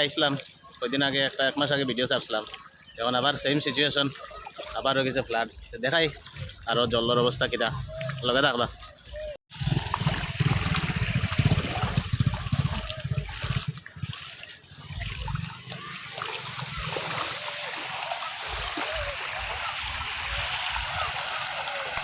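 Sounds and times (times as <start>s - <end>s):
floodwater rushing: 0.0s - 22.0s
heavy low rumbling: 9.6s - 14.2s.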